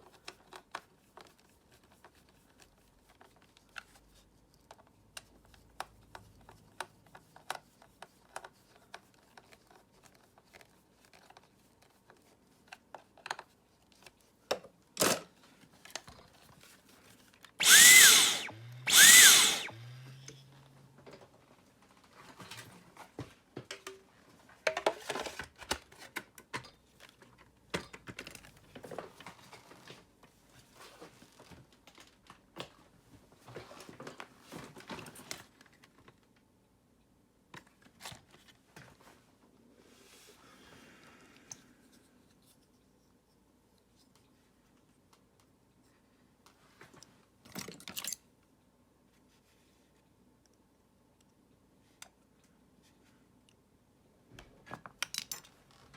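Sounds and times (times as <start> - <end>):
plastic clicks and handling: 4.6 - 16.5
vacuum cleaner motor whirring: 17.6 - 20.8.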